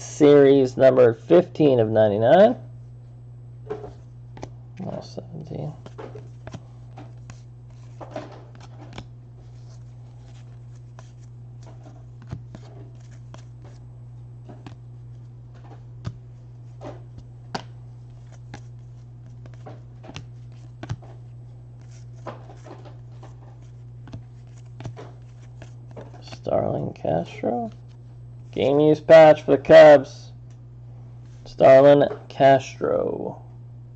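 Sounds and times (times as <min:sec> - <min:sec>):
steady low hum: 0:00.0 - 0:33.9
cards being flipped through: 0:03.7 - 0:26.5, 0:27.4 - 0:28.6.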